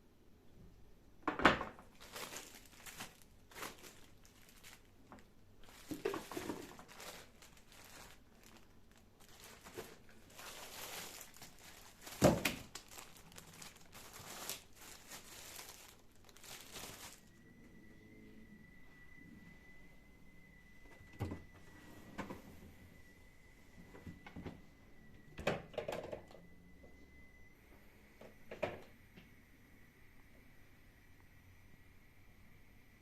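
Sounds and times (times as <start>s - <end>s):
crinkling and rustling: 1.3s - 17.4s.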